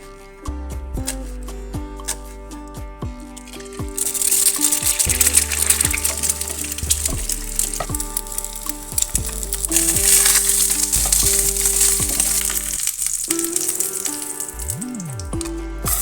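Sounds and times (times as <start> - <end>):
background music: 0.0 - 16.0
food sizzling in a pan: 3.4 - 16.0.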